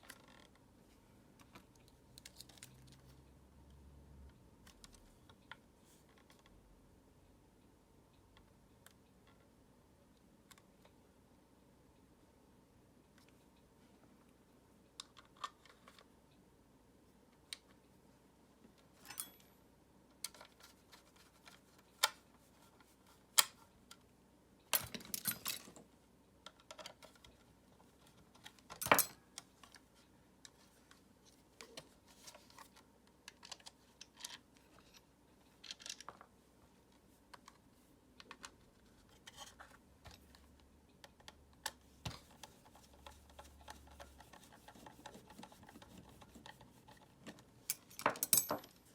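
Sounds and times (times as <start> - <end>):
plastic parts clicking and knocking: 31.6 - 36.3.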